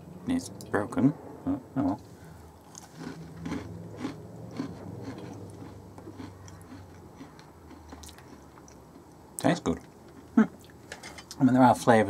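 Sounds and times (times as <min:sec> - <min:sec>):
person chewing cookie: 0:01.8 - 0:10.8.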